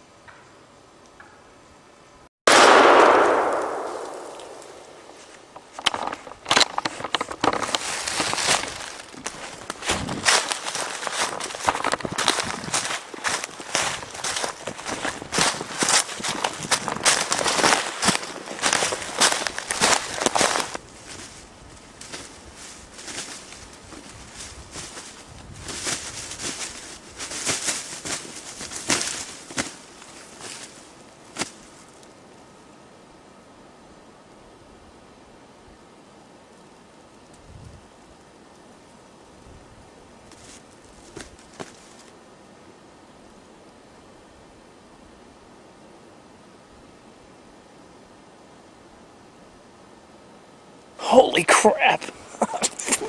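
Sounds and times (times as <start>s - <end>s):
shotgun blast echoing: 2.5s - 5.0s
sharp leaf crunch: 2.5s - 32.1s, 40.3s - 42.1s, 51.0s - 53.0s
rustling through dry leaves: 3.1s - 32.7s, 36.8s - 42.2s.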